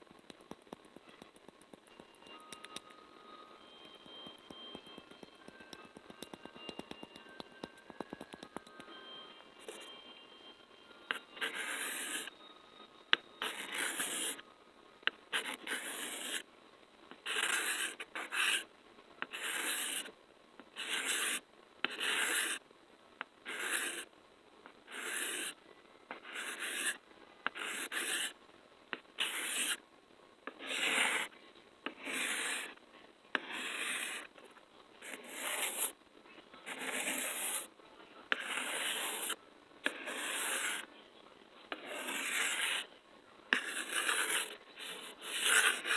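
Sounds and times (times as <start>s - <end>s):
scratchy rubbing strokes: 24.9s - 27.0s, 36.7s - 37.7s, 38.3s - 40.9s, 41.7s - 42.9s, 43.6s - 45.9s.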